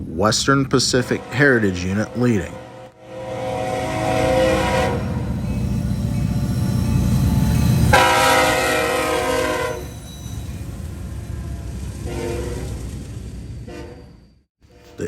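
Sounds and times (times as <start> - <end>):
locomotive engine rumble: 0.0 - 15.0
locomotive air horn blasts: 0.9 - 5.7, 7.9 - 10.0, 12.0 - 12.8, 13.7 - 14.0.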